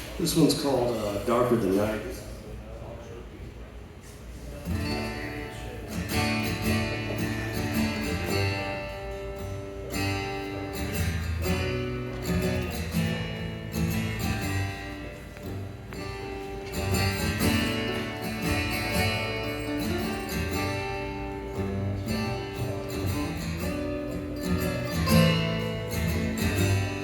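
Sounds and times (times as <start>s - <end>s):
acoustic guitar strummed and picked: 4.6s - 27.0s.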